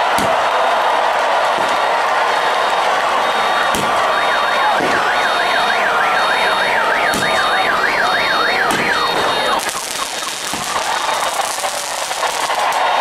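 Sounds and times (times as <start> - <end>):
steady background din: 0.0 - 13.0
electronic siren warbling: 3.4 - 12.7.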